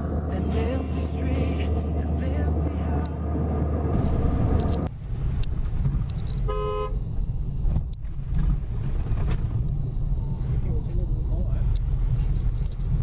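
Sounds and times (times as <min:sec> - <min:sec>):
road traffic rumble: 0:00.0 - 0:13.0
vehicle horn toot: 0:06.4 - 0:07.1.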